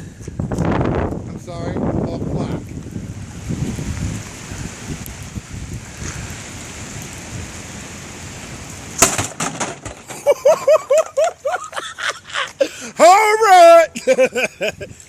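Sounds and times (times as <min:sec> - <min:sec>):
steady rain hiss: 0:00.0 - 0:15.0
sharp knocks: 0:09.0 - 0:10.2
person laughing: 0:10.1 - 0:13.0, 0:13.8 - 0:15.0.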